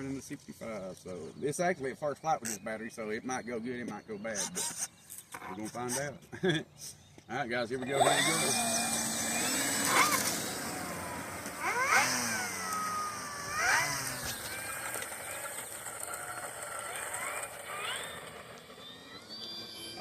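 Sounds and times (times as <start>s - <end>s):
model plane motors whining: 4.3s - 6.1s, 7.8s - 20.0s.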